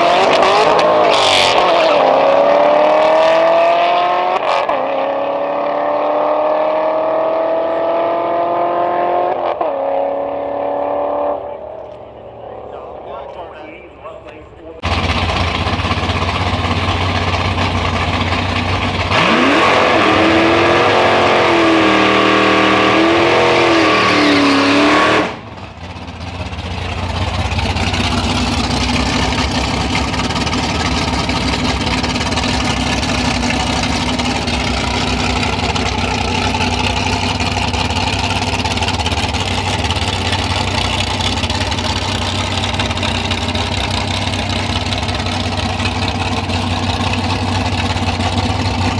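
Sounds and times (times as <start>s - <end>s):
car engine revving hard: 0.0s - 11.6s, 19.0s - 25.6s
car engine idling: 11.4s - 20.8s, 25.4s - 48.9s.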